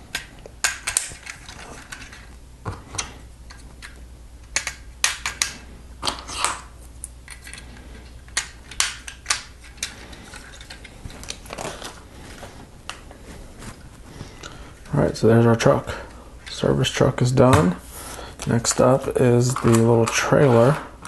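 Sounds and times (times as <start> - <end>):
plastic parts clattering: 0.1 - 6.4, 7.3 - 12.0, 18.4 - 21.0.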